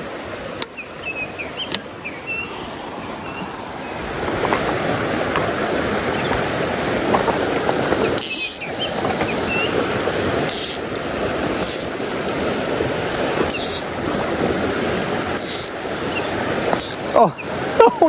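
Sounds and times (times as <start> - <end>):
mountain stream rushing: 0.0 - 18.0
fishing reel ratchet clicking: 8.2 - 8.6, 10.5 - 11.0, 11.6 - 11.9, 13.5 - 13.9, 15.4 - 15.8, 16.8 - 17.0.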